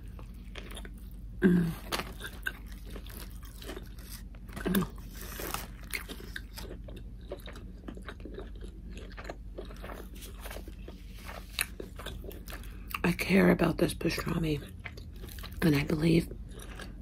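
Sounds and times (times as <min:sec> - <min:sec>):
wet chewing with mouth clicks: 0:00.0 - 0:13.2, 0:14.1 - 0:17.0
person humming mmm: 0:01.4 - 0:02.0, 0:04.6 - 0:05.2.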